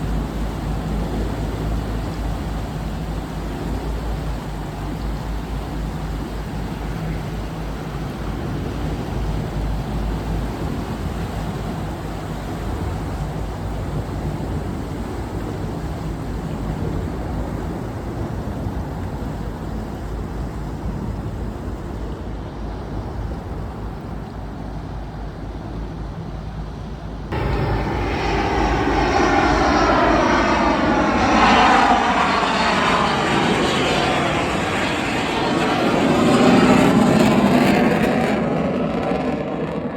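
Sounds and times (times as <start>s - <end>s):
steady engine and wind hum: 0.0s - 39.9s
engine passing close by: 27.3s - 39.8s.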